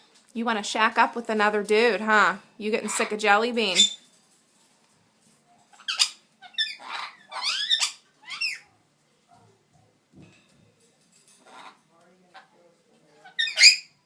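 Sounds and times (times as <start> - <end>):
parrot chirps and squawks: 2.8 - 4.1, 5.7 - 8.8, 11.4 - 12.5, 13.2 - 14.0.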